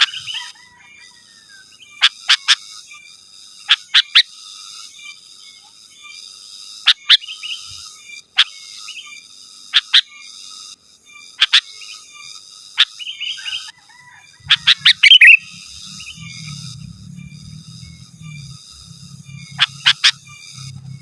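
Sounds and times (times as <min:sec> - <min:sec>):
bird bubbly chatter: 0:14.4 - 0:16.3
bird sharp falling calls: 0:14.5 - 0:15.5.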